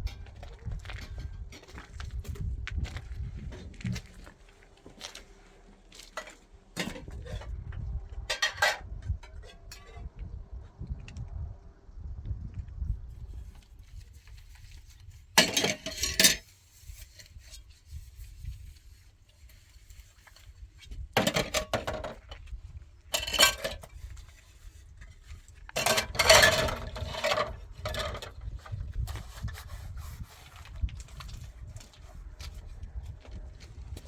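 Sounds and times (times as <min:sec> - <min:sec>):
dishes and utensils clattering: 0:06.2 - 0:07.5, 0:08.3 - 0:10.0, 0:15.4 - 0:16.5, 0:21.2 - 0:22.3, 0:23.1 - 0:24.0, 0:25.8 - 0:28.3.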